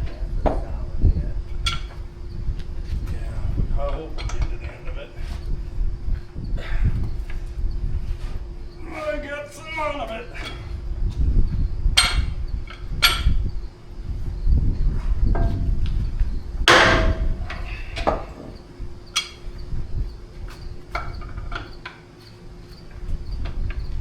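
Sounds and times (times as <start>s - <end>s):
faint steady hum: 0.0s - 24.0s
hammer blows on metal hub: 8.2s - 13.7s, 14.8s - 19.7s.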